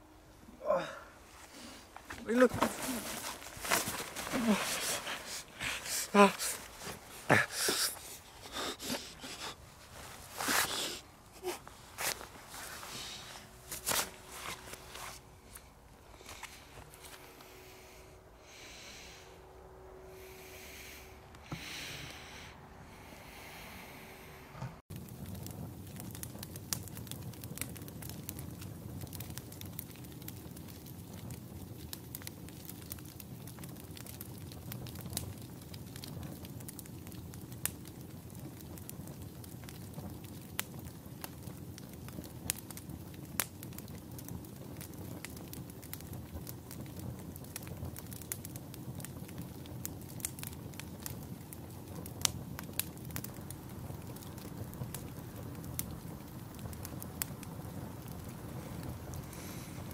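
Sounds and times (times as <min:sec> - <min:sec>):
campfire crackling: 0:00.0 - 0:59.9
sharp pops of fire: 0:24.9 - 0:59.9.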